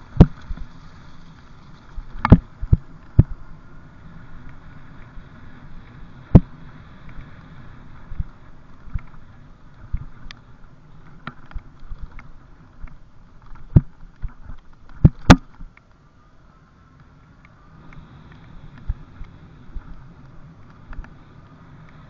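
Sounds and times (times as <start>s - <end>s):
bike knocks and clunks: 0.0s - 0.7s
wind on microphone: 0.0s - 15.7s.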